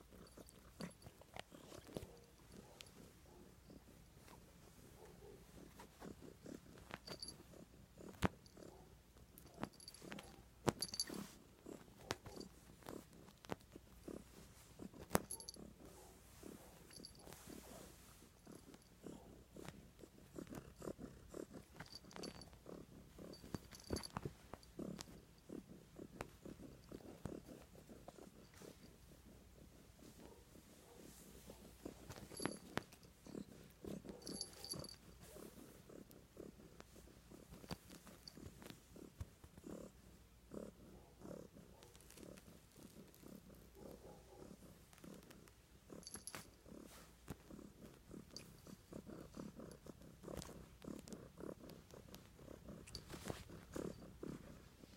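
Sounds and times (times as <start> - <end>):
cat purring: 0.0 - 54.9.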